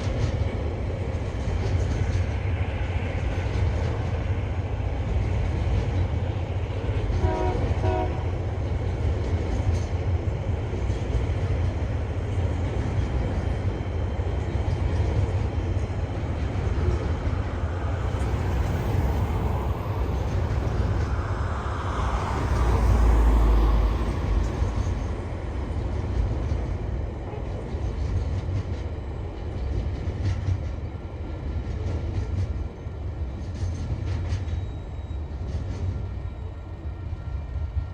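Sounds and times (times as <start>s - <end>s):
freight train rumbling on rails: 0.0s - 37.9s
train horn toots: 7.1s - 8.4s.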